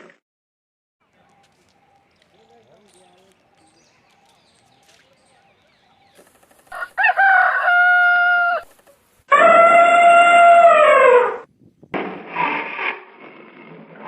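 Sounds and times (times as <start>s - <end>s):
rooster crowing: 6.7s - 11.5s.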